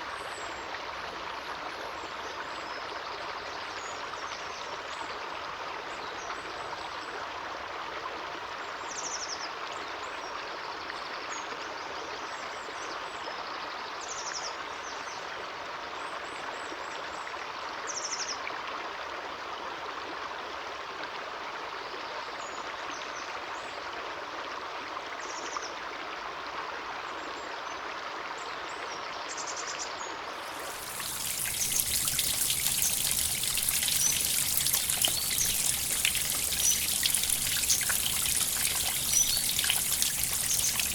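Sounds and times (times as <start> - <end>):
stream water flowing: 30.2 - 40.9
water trickling and splashing: 30.2 - 40.9.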